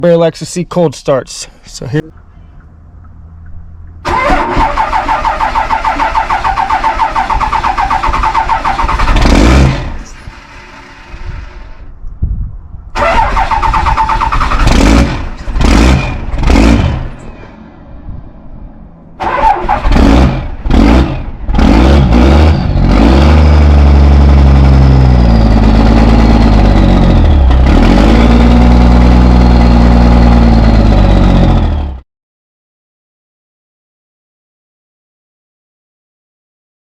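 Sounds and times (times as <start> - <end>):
diesel engine running: 2.1 - 11.9, 19.2 - 32.0
starter motor cranking: 4.0 - 11.7, 13.0 - 15.6.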